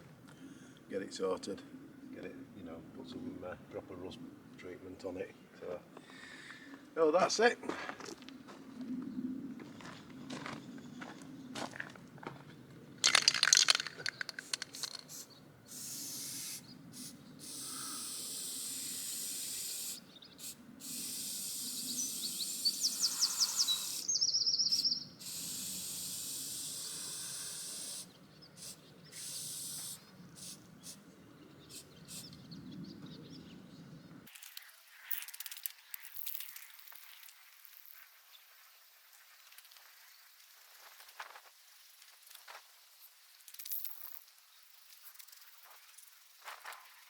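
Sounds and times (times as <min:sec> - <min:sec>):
quick clatter: 0:13.0 - 0:15.1
spray paint can hissing: 0:13.0 - 0:22.7, 0:25.2 - 0:31.0.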